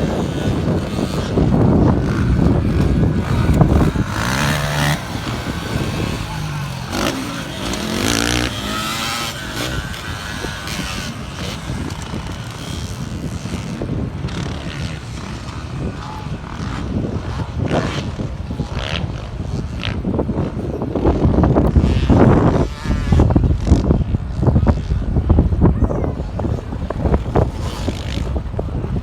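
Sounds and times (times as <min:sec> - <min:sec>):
off-road race engines revving: 0:00.0 - 0:29.0.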